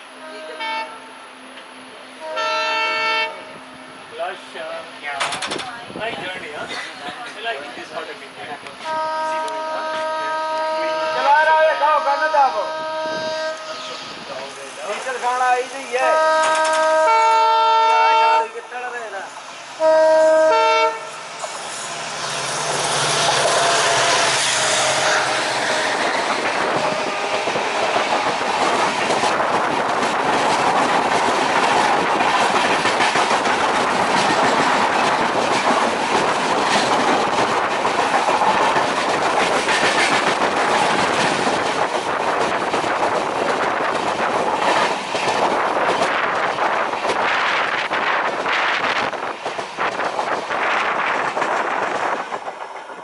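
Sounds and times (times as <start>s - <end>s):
train rumbling over rails: 0.0s - 53.0s
diesel train horn: 0.1s - 1.3s, 2.2s - 3.6s, 8.8s - 14.0s, 16.0s - 18.6s, 19.8s - 21.4s, 22.9s - 26.0s.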